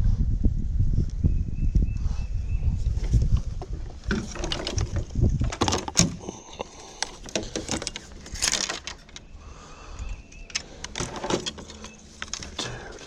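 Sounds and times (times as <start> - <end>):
clicking and rattling: 3.0 - 9.4, 10.0 - 13.0.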